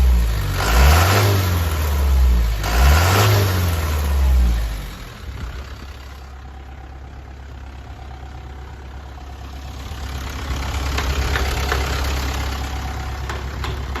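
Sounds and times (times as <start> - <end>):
diesel truck engine idling: 3.7 - 14.0.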